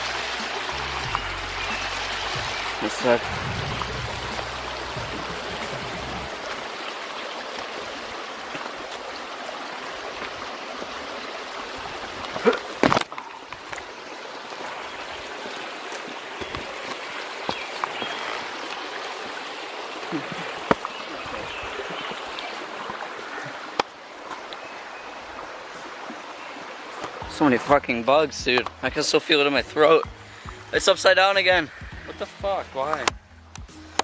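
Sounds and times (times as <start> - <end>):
running water rushing: 0.0 - 33.1.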